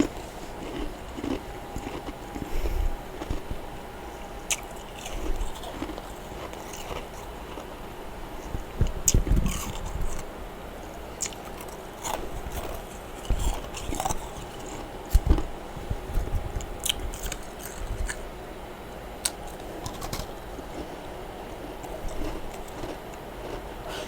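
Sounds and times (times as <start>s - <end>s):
frost being chewed: 0.0s - 7.7s, 8.4s - 10.3s, 10.9s - 18.3s, 19.2s - 23.7s.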